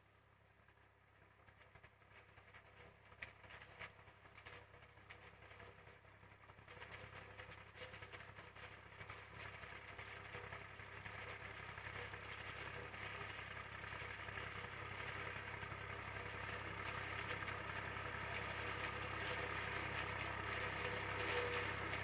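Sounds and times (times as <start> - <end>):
tractor diesel engine drone: 7.2 - 22.0.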